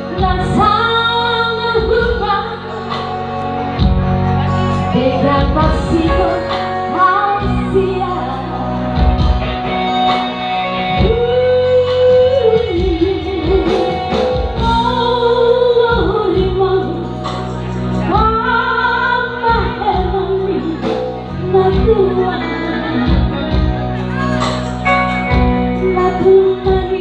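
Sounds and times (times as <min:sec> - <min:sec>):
woman singing with vibrato: 0:00.0 - 0:03.0, 0:04.9 - 0:09.0, 0:10.8 - 0:17.3, 0:18.0 - 0:23.6, 0:25.6 - 0:27.0
instrumental accompaniment: 0:00.0 - 0:27.0.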